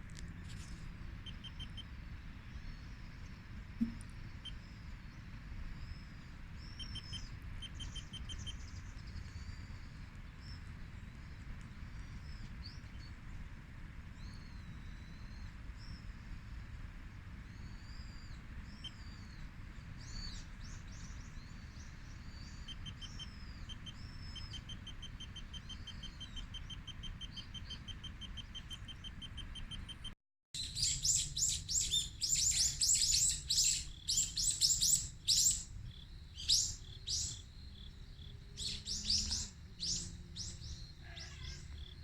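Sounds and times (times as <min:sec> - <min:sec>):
small birds chirping: 0:00.2 - 0:13.2, 0:17.2 - 0:42.0
rapid ticking bird calls: 0:01.1 - 0:02.2, 0:06.6 - 0:09.9, 0:20.7 - 0:42.0.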